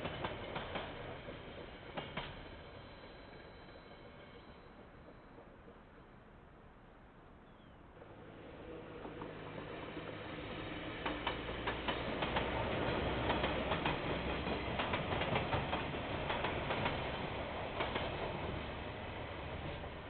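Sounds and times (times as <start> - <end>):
wheels clicking over rail joints: 8.7 - 20.0.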